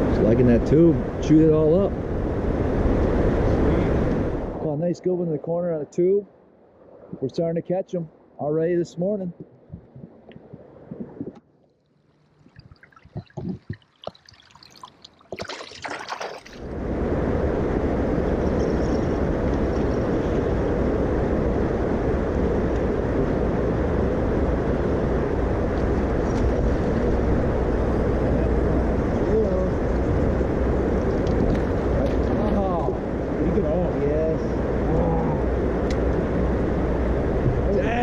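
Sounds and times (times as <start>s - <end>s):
faint splashes and clicks: 9.4s - 16.6s
jet boat running at speed: 16.6s - 38.0s.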